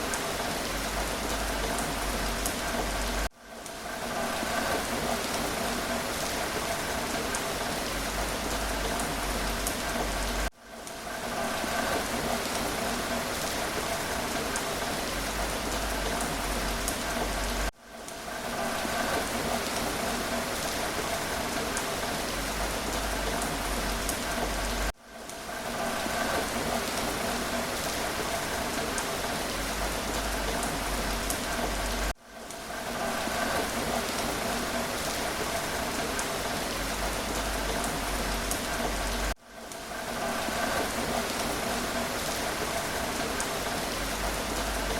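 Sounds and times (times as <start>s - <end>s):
steady rain: 0.0s - 44.9s.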